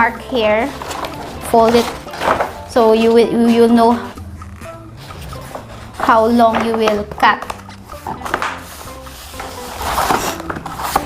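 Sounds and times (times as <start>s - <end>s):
quiet background music: 0.0s - 11.0s
paper rustling and crinkling: 0.6s - 2.6s, 5.0s - 11.0s.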